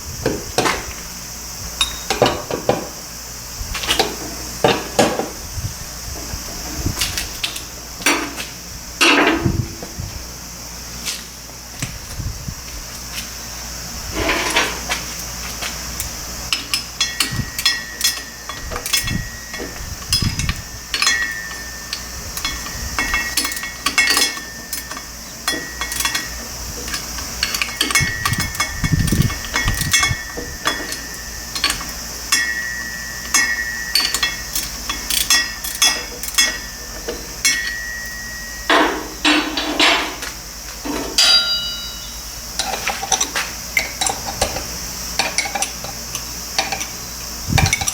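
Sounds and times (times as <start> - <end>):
hand tools knocking on metal: 16.5 - 46.0
faint steady high tone: 41.2 - 42.4.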